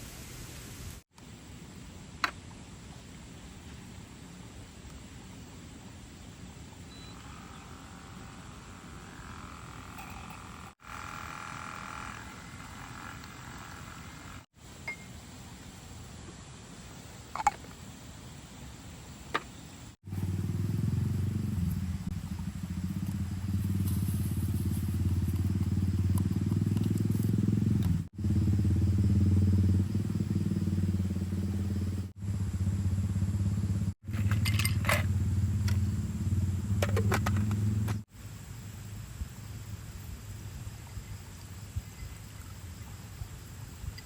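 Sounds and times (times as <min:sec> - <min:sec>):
motor humming: 0:07.2 - 0:14.4.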